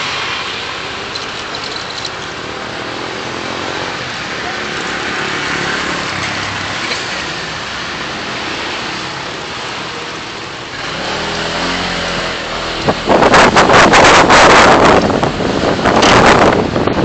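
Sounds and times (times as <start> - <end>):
city traffic noise: 0.0 - 17.0
engine hum: 0.0 - 17.0
wind buffeting microphone: 12.6 - 17.0.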